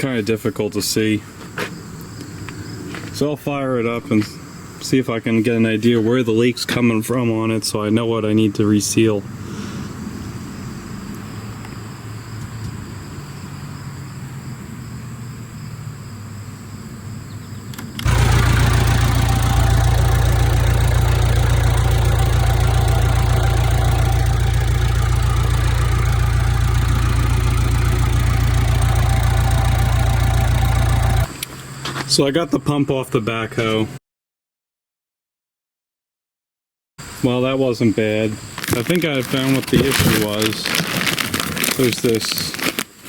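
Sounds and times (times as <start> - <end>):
low steady hum: 18.0 - 31.3
backhoe diesel engine running: 18.0 - 31.4, 38.6 - 41.8.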